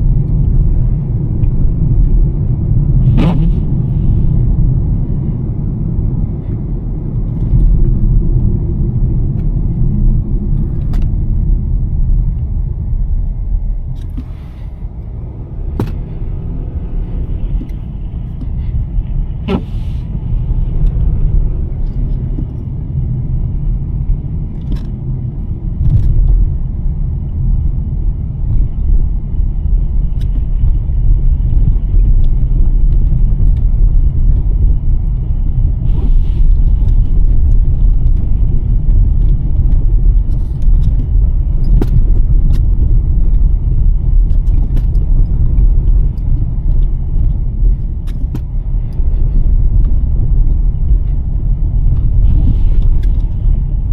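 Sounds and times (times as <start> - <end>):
tyre and road rumble: 0.0 - 53.9.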